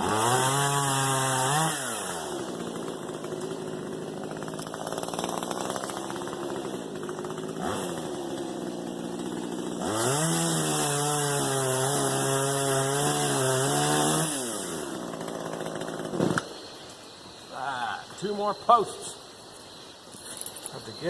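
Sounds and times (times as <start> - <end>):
chainsaw idling and revving: 0.0 - 16.7.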